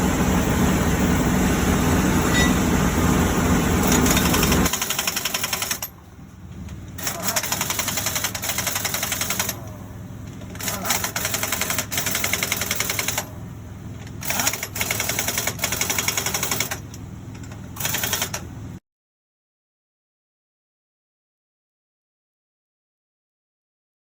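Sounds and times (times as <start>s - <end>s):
low engine hum: 0.0s - 18.8s
impact wrench hammering: 3.8s - 5.9s.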